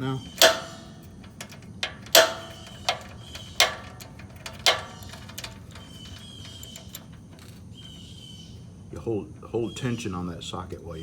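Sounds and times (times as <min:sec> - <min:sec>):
socket ratchet clicking: 0:00.4 - 0:08.1.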